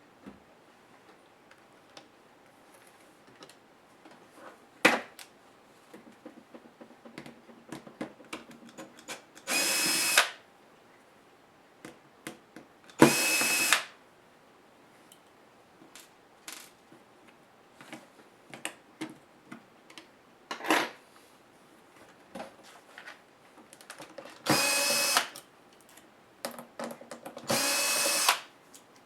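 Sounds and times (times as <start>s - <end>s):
power driver whirring: 9.5s - 10.4s, 13.0s - 13.9s, 24.5s - 25.4s, 27.5s - 28.5s.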